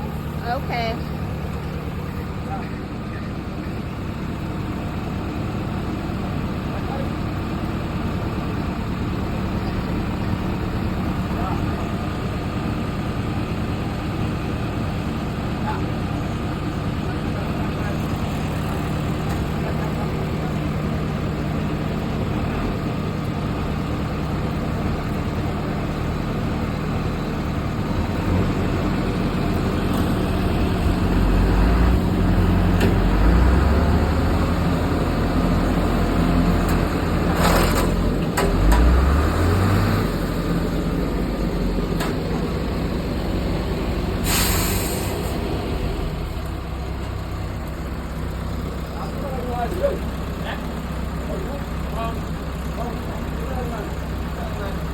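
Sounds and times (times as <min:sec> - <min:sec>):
heavy diesel engines revving: 0:00.0 - 0:54.9
short sharp hisses: 0:44.2 - 0:45.4.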